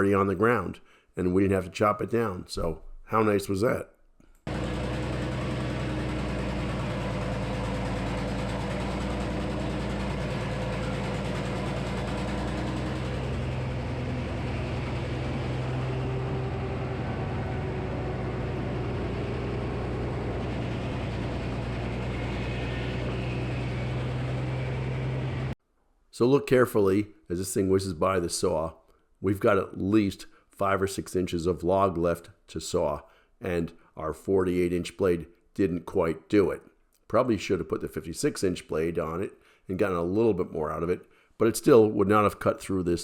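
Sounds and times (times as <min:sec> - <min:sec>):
sawmill engine droning: 0:04.5 - 0:25.6.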